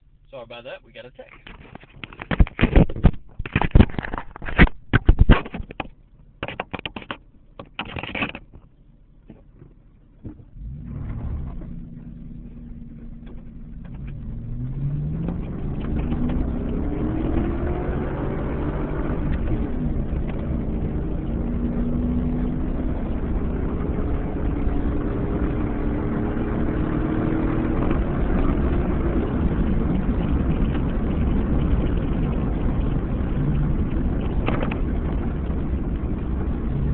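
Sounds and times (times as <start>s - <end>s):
tyres on gravel road: 0.0s - 36.9s
loud knocks and clatter: 1.4s - 8.7s, 33.8s - 35.3s
car engine accelerating: 8.3s - 36.9s.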